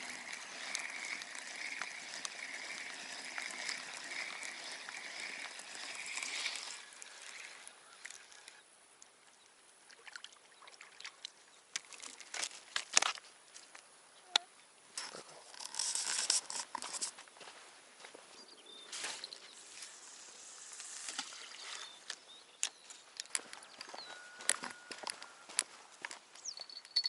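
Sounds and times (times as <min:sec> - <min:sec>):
clicks and rustles: 0:11.8 - 0:13.8, 0:15.0 - 0:17.2
steady hiss: 0:18.9 - 0:22.1.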